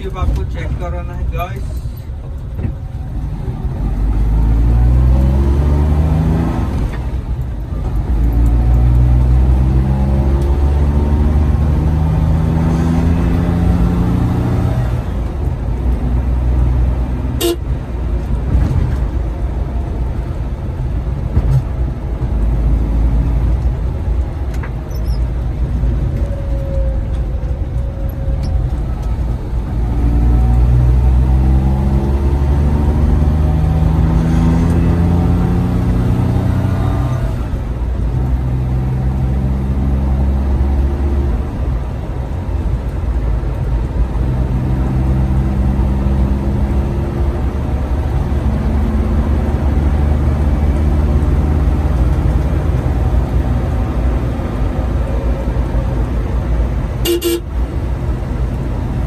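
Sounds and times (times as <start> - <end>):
van engine through gears: 0.0 - 59.0.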